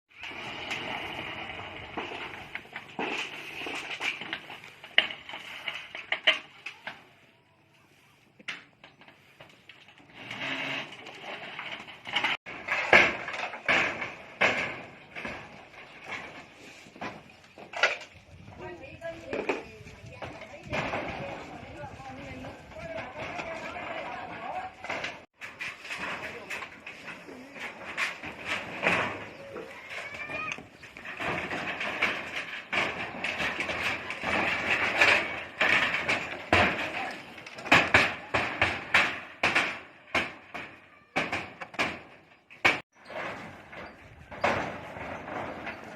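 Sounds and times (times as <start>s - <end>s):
sharp knocks and clatter: 8.4s - 18.6s, 19.3s - 45.9s.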